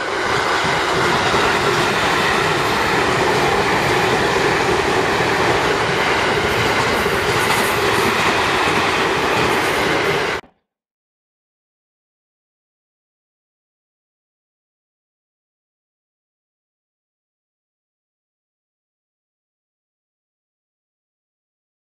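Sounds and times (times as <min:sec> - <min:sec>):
train wheels clattering: 0:00.0 - 0:10.4
trains rumbling on rails: 0:00.0 - 0:10.4.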